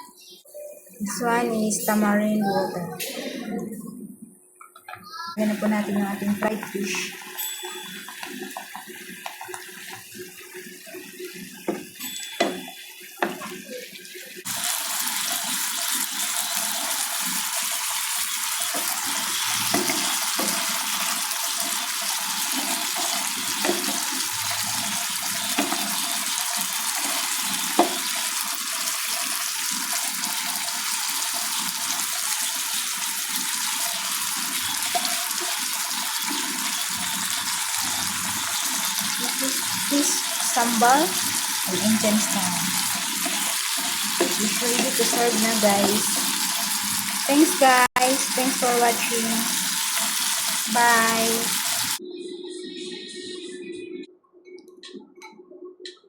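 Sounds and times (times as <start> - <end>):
sauce sizzling in a pan: 5.4 - 52.0.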